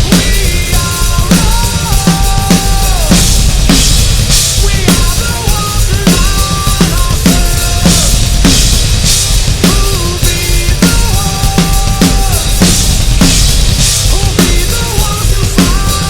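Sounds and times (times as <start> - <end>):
rock band music: 0.0 - 16.0
rock drum kit playing: 0.0 - 16.0.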